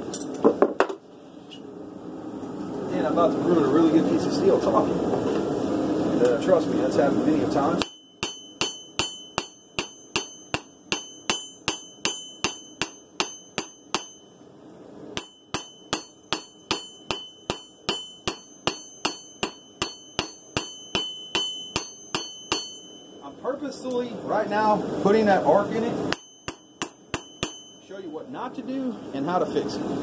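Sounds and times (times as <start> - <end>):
hammer striking steel on anvil: 7.7 - 14.5, 15.2 - 24.0, 26.1 - 28.2.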